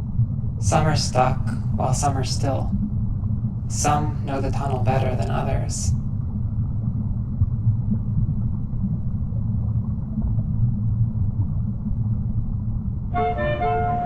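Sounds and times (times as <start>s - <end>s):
muffled low rumble: 0.0s - 14.0s.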